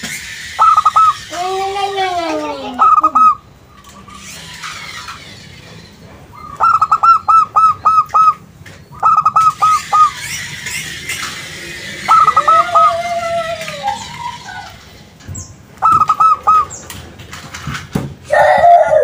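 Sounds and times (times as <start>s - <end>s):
dove cooing: 6.4s - 8.4s, 12.0s - 13.1s, 15.8s - 16.8s.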